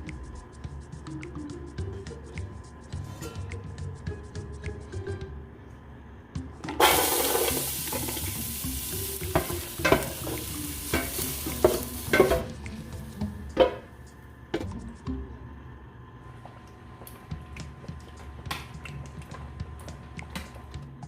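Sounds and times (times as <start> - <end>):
food sizzling in a pan: 6.8 - 12.5
utensil knocking against pan: 9.2 - 12.6.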